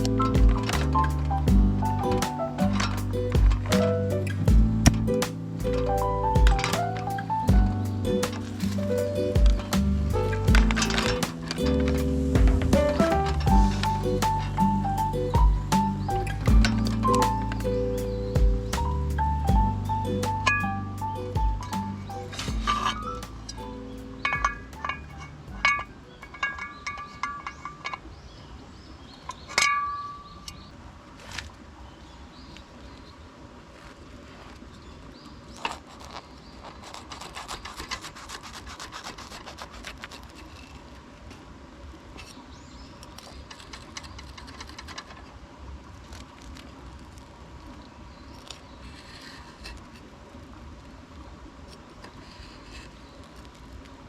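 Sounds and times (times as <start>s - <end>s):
rustling of things handled: 0.0s - 17.7s, 20.2s - 28.1s, 33.6s - 41.5s
steady low rumble: 0.0s - 26.3s.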